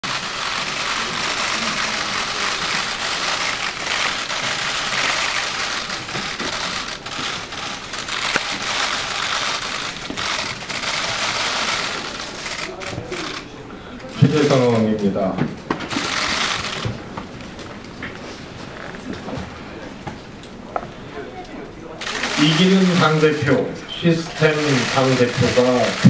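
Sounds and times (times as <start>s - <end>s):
camera shutters clicking: 0.1s - 13.5s, 15.8s - 17.0s, 22.0s - 23.6s, 24.3s - 26.0s.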